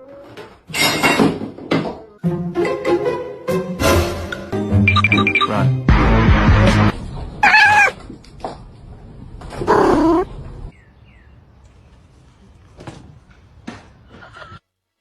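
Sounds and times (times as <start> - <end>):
cat meowing: 7.4 - 8.0.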